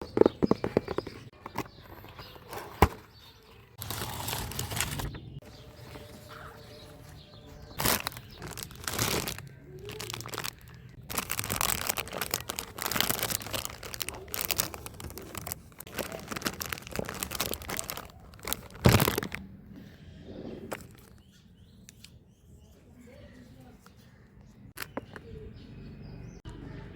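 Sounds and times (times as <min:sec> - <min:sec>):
packaging crinkling and tearing: 0:03.8 - 0:19.4.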